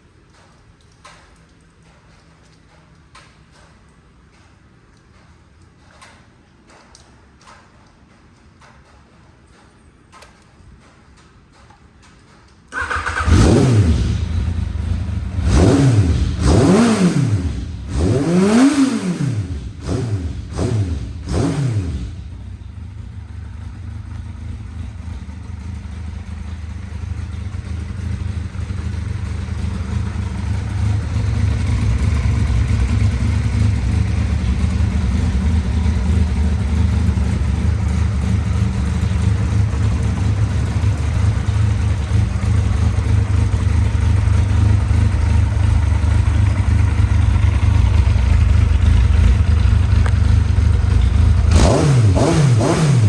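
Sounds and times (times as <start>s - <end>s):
motorcycle engine idling: 12.8s - 53.0s.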